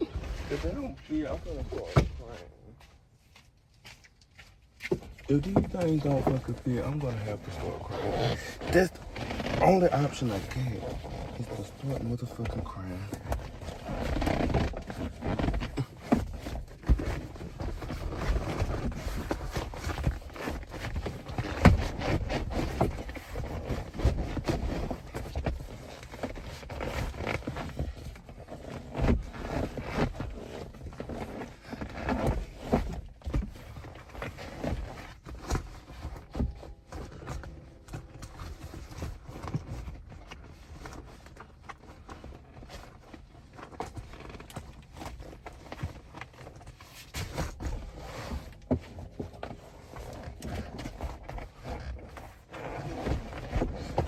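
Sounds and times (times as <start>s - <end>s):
knocks and thumps from handling: 0.0s - 2.4s
fabric rustling and scraping: 0.0s - 54.0s.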